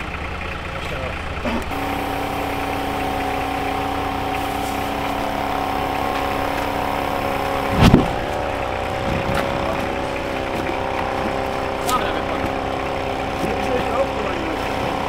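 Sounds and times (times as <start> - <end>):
vehicle engine running: 0.0 - 15.0
loud thump: 7.7 - 8.4.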